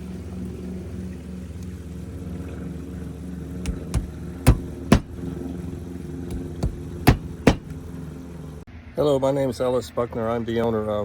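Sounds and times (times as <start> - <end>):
engine humming: 1.8 - 8.6
sharp knocks: 3.7 - 5.2, 6.3 - 7.8.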